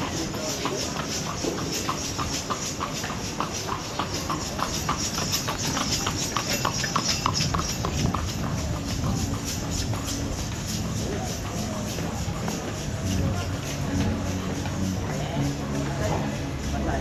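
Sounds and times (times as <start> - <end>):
horse hooves clip-clopping: 0.0 - 17.0
steady rushing noise: 7.2 - 17.0.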